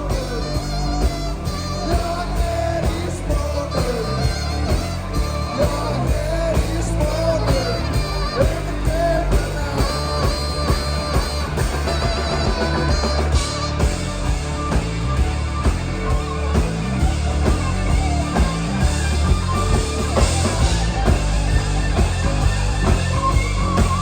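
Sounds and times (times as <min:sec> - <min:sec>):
person singing: 0:00.0 - 0:14.1
electric guitar: 0:00.0 - 0:24.0
live rock band playing: 0:00.0 - 0:24.0.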